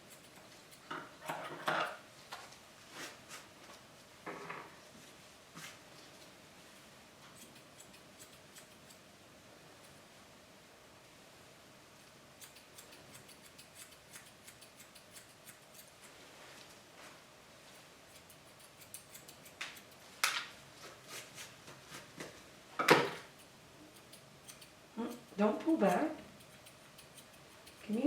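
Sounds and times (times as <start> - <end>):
grooming shears snipping hair: 0.0 - 1.7, 6.7 - 9.0, 12.0 - 16.8, 17.6 - 22.2, 23.2 - 28.0.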